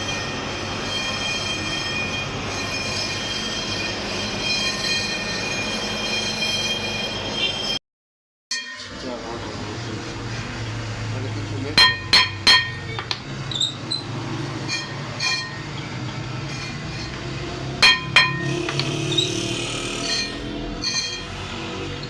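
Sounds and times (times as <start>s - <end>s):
metal struck ringing: 11.8s - 12.9s, 17.8s - 18.7s.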